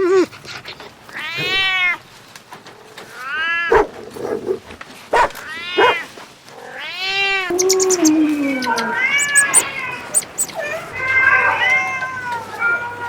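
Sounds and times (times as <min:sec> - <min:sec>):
cat meowing: 0:06.7 - 0:13.0.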